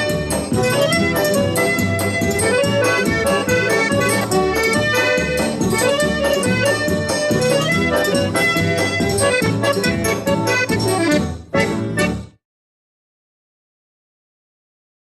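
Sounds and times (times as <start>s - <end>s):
percussion beat: 0.0s - 11.6s
accordion melody: 0.0s - 12.4s.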